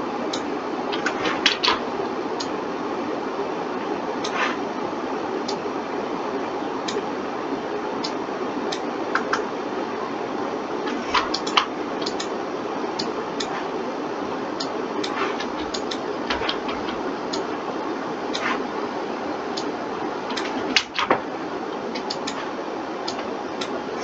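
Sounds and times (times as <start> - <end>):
steady low hiss: 0.0 - 24.0
mouse and keyboard clicks: 0.9 - 1.8, 10.9 - 12.3, 20.3 - 21.2, 22.0 - 22.5.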